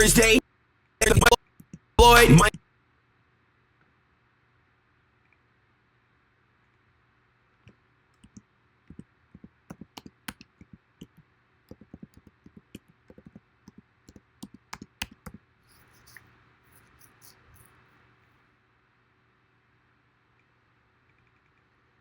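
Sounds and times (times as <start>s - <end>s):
keyboard keystrokes: 8.2s - 13.8s, 14.4s - 15.4s
computer mouse clicks: 8.2s - 16.2s.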